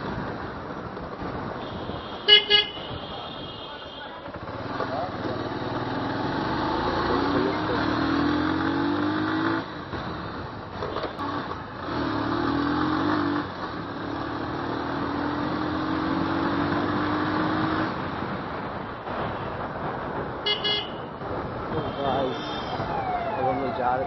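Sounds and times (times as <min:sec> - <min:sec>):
motorcycle engine revving: 0:04.4 - 0:18.2.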